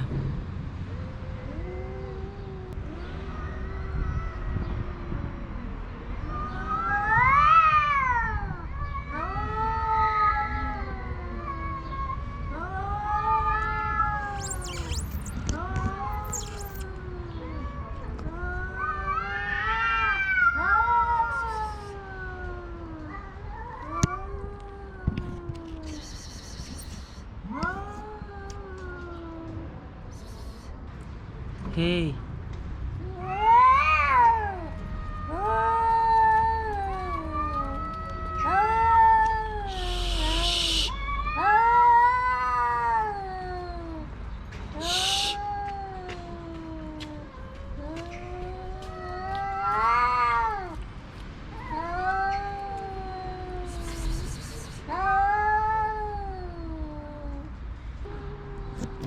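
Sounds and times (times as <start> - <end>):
cats yowling: 6.4 - 17.8, 18.4 - 29.7, 33.1 - 44.1, 44.8 - 50.8, 51.5 - 59.0
cat hissing: 14.2 - 16.9, 25.8 - 27.8, 44.8 - 45.4, 53.6 - 55.0.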